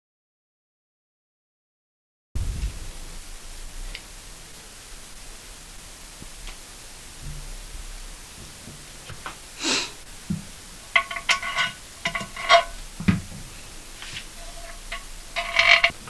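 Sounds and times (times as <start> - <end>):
dull thud: 2.4 - 9.5
short hiss: 2.4 - 16.0
sharp clinks and knocks: 10.4 - 15.9.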